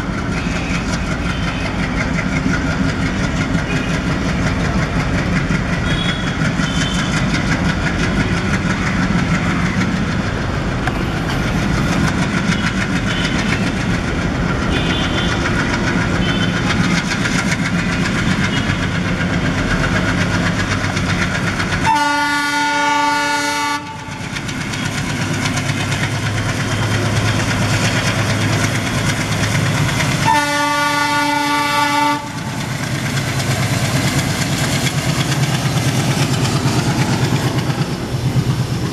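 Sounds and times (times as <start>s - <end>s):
diesel locomotive engine and rail noise: 0.0s - 38.9s
locomotive multi-tone horn: 3.5s - 4.1s, 5.7s - 7.4s, 12.4s - 13.8s, 14.6s - 16.8s, 21.8s - 24.2s, 30.2s - 32.6s.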